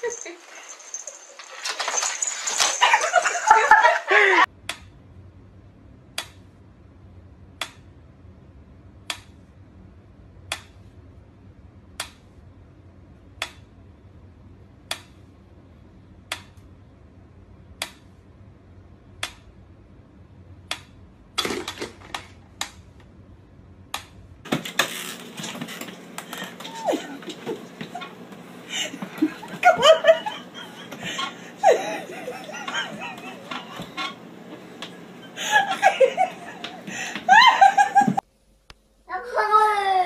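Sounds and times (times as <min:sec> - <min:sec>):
loud rustling: 0:00.0 - 0:04.0.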